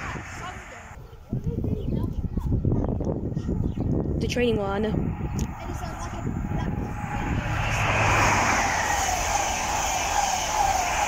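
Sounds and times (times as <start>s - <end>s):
train rushing past: 0.0s - 1.0s, 4.4s - 11.0s
high whine falling in pitch: 4.8s - 11.0s.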